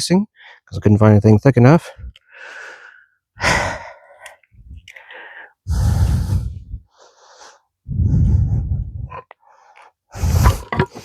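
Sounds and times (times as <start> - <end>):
man exhaling hard: 5.2 - 6.9.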